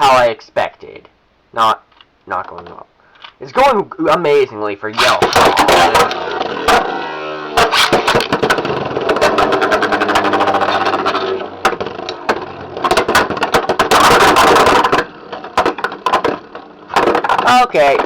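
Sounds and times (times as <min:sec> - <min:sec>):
spinning tops whirring: 0:05.0 - 0:17.0
scraping and grinding: 0:05.0 - 0:18.0.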